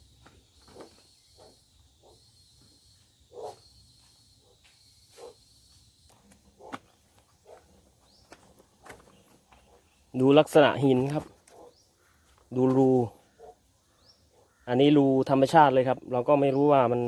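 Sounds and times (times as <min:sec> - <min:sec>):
footsteps on dry forest floor: 0:00.0 - 0:01.9, 0:02.5 - 0:14.2
high insect buzz: 0:00.0 - 0:07.8.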